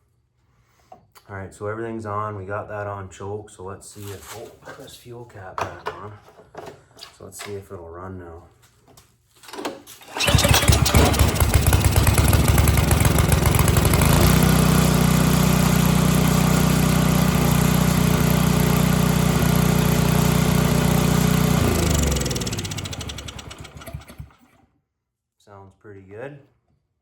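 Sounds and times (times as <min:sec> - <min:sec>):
small gas engine running: 0:10.2 - 0:24.6.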